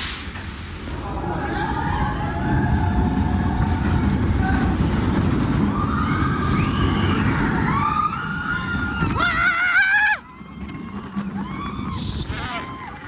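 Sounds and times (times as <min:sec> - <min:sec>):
roller coaster rumbling on track: 0:00.0 - 0:13.0
riders screaming: 0:05.6 - 0:13.0.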